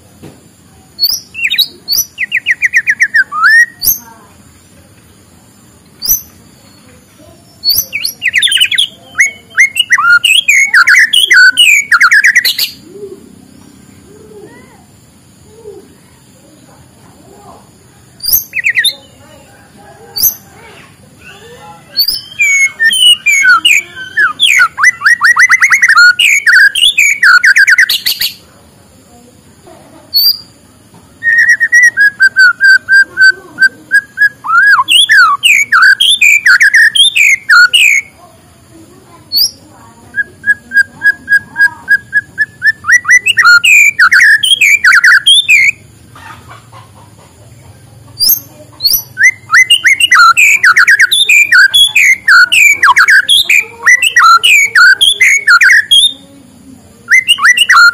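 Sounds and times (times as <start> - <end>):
songbird whistling and singing: 0.9 - 4.2, 6.0 - 13.8, 18.2 - 19.2, 20.0 - 20.6, 21.2 - 28.4, 30.1 - 30.6, 31.2 - 38.2, 39.3 - 46.8, 48.1 - 56.3, 57.0 - 57.9.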